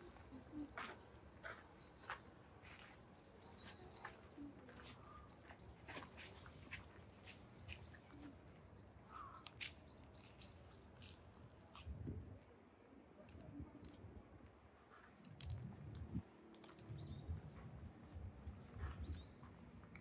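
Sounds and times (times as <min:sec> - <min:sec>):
faint bird chirps: 0:07.6 - 0:11.3.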